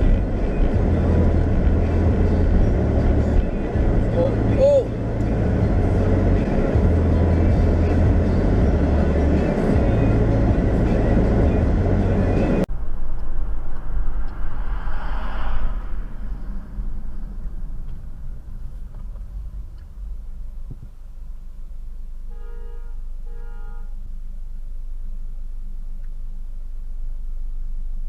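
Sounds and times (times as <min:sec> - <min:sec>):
car road and engine rumble: 0:00.0 - 0:28.0
passing vehicle whoosh: 0:11.0 - 0:21.5
car horn beeps: 0:22.2 - 0:24.1.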